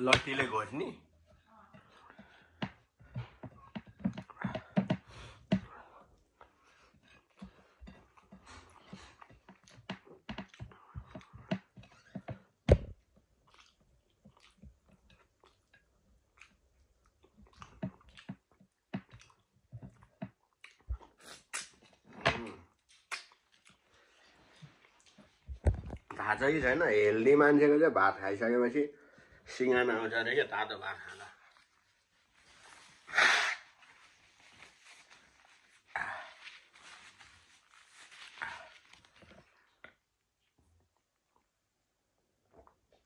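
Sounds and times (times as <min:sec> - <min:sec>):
chewing and mouth smacking: 0:13.2 - 0:22.1, 0:22.7 - 0:26.1.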